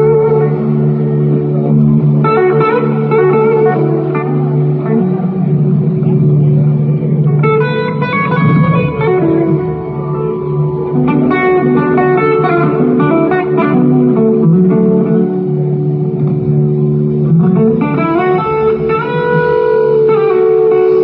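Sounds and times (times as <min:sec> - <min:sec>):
bass: 0:00.0 - 0:21.0
electric guitar sustained notes: 0:00.0 - 0:21.0.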